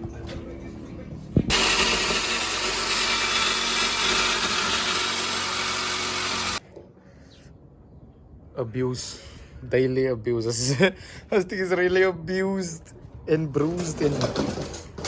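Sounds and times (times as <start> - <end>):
power tool hissing: 1.5 - 6.6.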